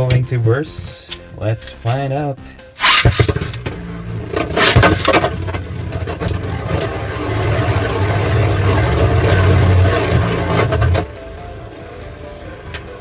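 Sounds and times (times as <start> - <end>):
spinning tops clashing: 2.8 - 3.7
spinning tops whirring: 2.8 - 11.2.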